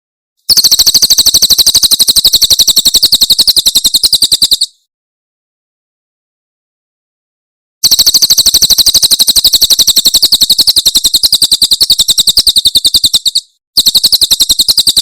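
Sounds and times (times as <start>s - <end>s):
bird singing rapid trill: 0.5s - 4.9s, 7.8s - 15.0s.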